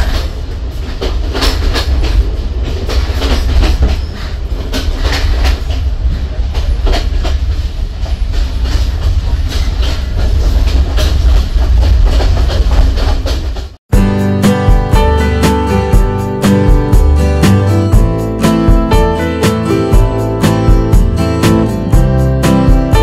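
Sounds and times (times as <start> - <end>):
wheels clicking over rails: 0.0 - 13.8
train rumbling: 0.0 - 23.0.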